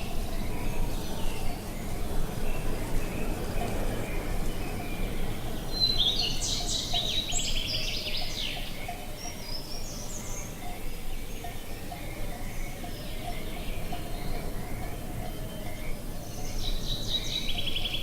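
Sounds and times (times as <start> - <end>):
outdoor background noise: 0.0 - 18.0
songbird trilling: 5.7 - 10.7, 15.7 - 18.0.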